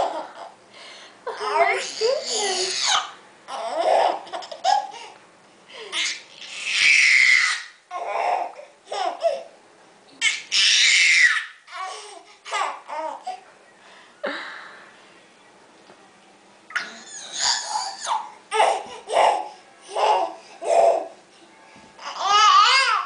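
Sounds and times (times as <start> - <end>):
baby laughing and babbling: 0.0 - 0.6, 1.3 - 5.2, 5.8 - 9.5, 11.2 - 13.5, 16.7 - 21.2, 22.0 - 23.0.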